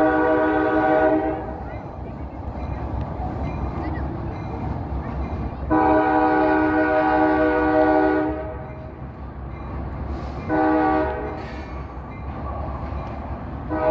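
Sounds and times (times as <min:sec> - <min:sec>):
locomotive air horn blasts: 0:00.0 - 0:01.6, 0:05.7 - 0:08.6, 0:10.5 - 0:11.4, 0:13.7 - 0:13.9
low rumble of passing train: 0:00.0 - 0:13.9.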